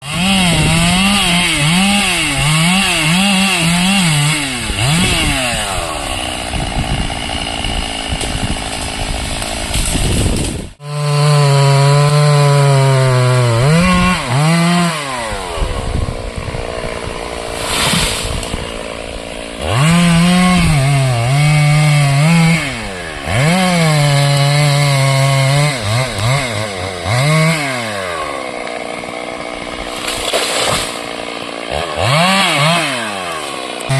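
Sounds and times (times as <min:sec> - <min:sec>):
chainsaw cutting timber: 0:00.0 - 0:33.9.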